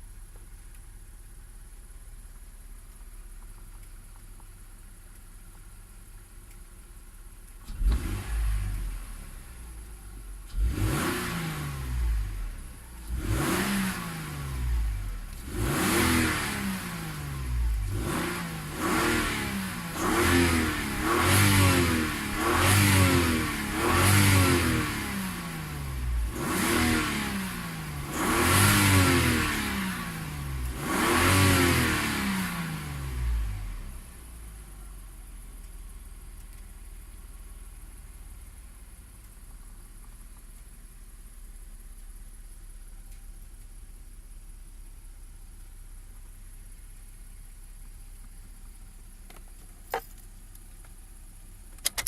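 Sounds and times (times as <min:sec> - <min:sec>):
engine revving: 0:07.6 - 0:09.6, 0:10.4 - 0:34.0.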